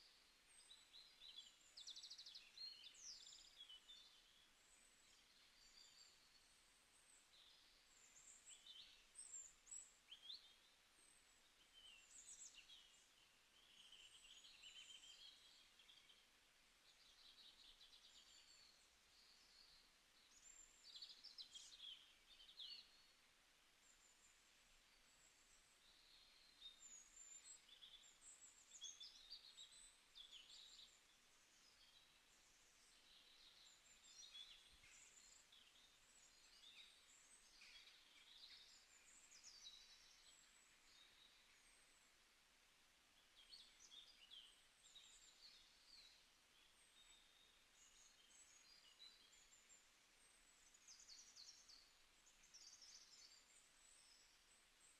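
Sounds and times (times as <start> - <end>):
faint birds chirping: 0.0 - 54.9
low background hiss: 0.0 - 54.9.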